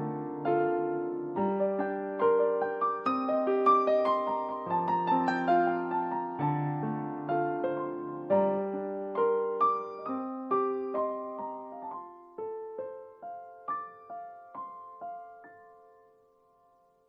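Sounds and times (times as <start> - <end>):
slow solo piano melody: 0.0 - 17.0.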